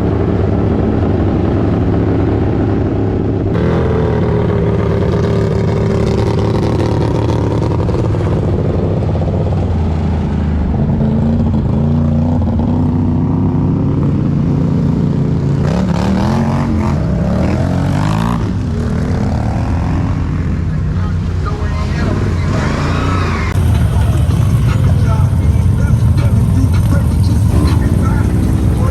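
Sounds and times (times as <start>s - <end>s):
vehicle engine running: 0.0s - 15.7s, 23.6s - 28.9s.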